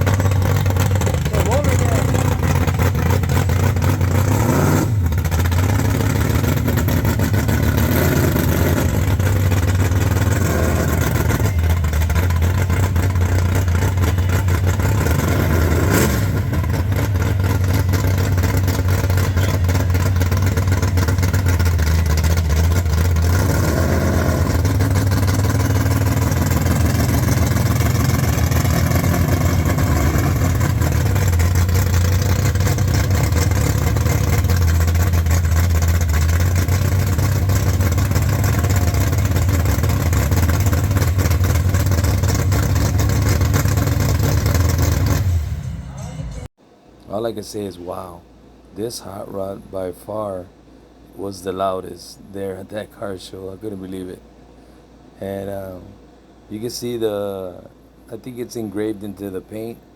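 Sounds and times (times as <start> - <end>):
car engine idling and revving: 0.0 - 46.6.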